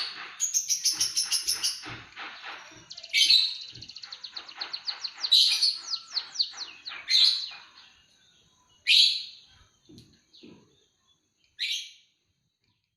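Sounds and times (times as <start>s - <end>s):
harsh bird bursts: 0.0s - 7.9s
songbird trilling song: 0.0s - 12.9s.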